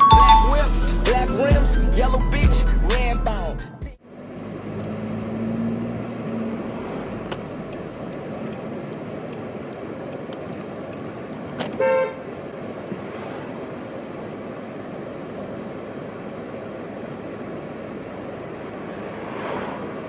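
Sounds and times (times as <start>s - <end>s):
traffic noise: 0.0s - 20.0s
car horn toot: 11.6s - 12.4s.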